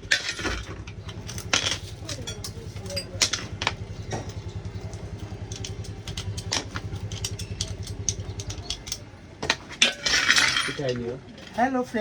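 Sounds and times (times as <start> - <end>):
engine idling with low pulse: 0.0 - 11.3
sharp metallic clicks and taps: 0.8 - 9.7.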